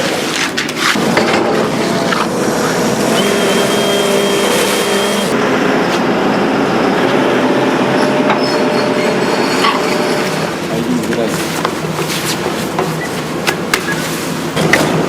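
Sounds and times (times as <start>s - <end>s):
excavator engine and hydraulics: 0.0s - 15.0s
high whine: 1.0s - 10.9s.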